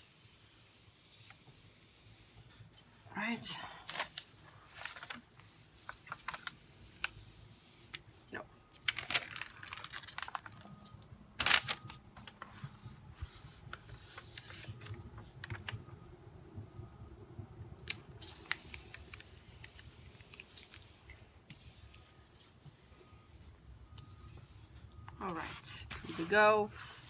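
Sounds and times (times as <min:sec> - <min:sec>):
canvas crinkling and rustling: 0:03.6 - 0:15.8.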